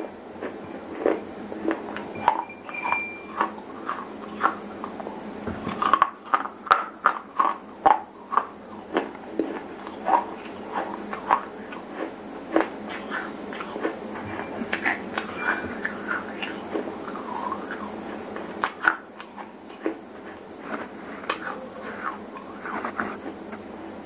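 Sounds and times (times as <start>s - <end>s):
chewing and crunching stones: 5.7s - 17.9s.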